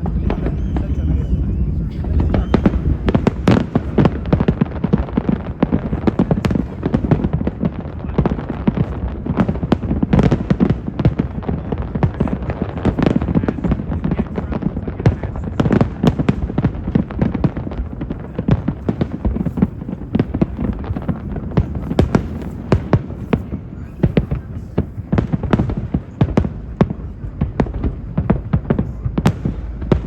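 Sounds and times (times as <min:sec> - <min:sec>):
low rumble: 0:00.0 - 0:06.8
fireworks booms and crackling: 0:00.0 - 0:30.0.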